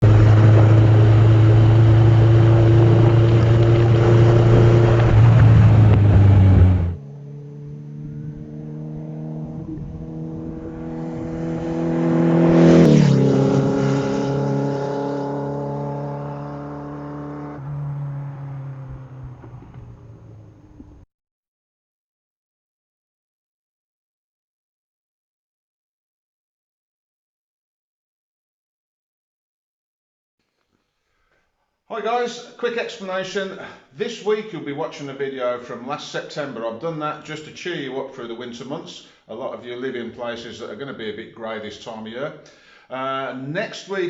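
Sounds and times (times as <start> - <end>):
car engine running loudly: 0.0 - 7.0
car driving past: 0.0 - 21.0.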